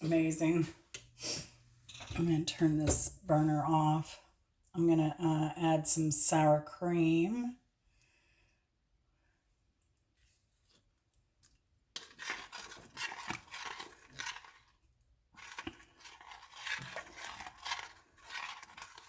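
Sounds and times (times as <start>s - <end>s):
spoon scraping and stirring sauce: 0.0s - 3.6s, 10.2s - 19.0s.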